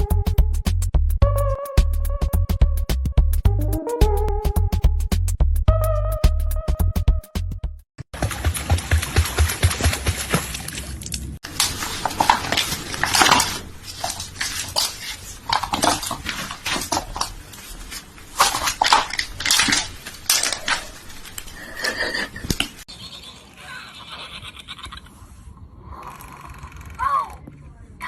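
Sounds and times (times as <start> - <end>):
hard objects clattering and knocking: 11.5 - 22.8.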